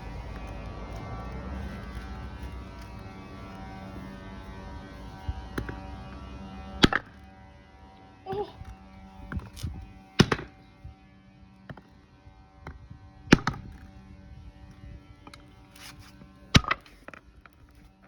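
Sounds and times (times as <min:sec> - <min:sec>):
sledgehammer striking rock: 0:06.8 - 0:07.1, 0:10.2 - 0:10.6, 0:13.3 - 0:13.7, 0:16.6 - 0:17.0.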